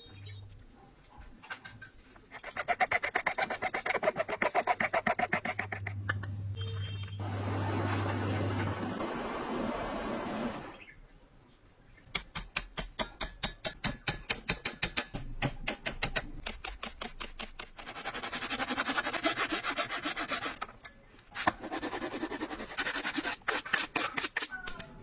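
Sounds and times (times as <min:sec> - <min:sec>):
rasp rubbing on wood: 0:02.3 - 0:06.0, 0:17.4 - 0:20.6.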